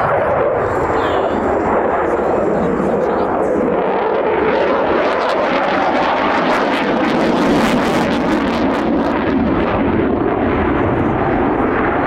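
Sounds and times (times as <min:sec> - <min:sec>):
jet engines roaring and crackling: 0:00.0 - 0:12.0.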